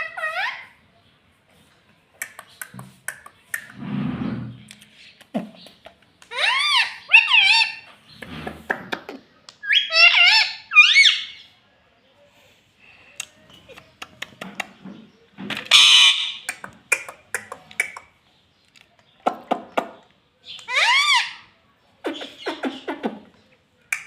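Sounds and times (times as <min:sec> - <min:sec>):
parrot chirpy calls: 0:00.0 - 0:00.8, 0:06.3 - 0:08.2, 0:09.6 - 0:11.5, 0:15.6 - 0:18.2, 0:20.4 - 0:23.4
parrot harsh squawk: 0:00.0 - 0:00.8, 0:06.3 - 0:07.9, 0:09.6 - 0:11.4, 0:15.7 - 0:16.5, 0:20.7 - 0:21.5
parrot clicks: 0:02.2 - 0:03.8, 0:16.4 - 0:18.1.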